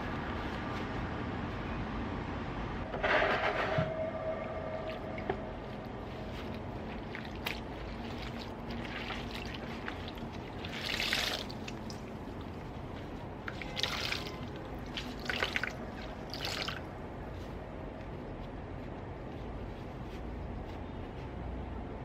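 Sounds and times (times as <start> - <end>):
low background hum: 0.0 - 22.0
water splashing in a basin: 6.9 - 16.9.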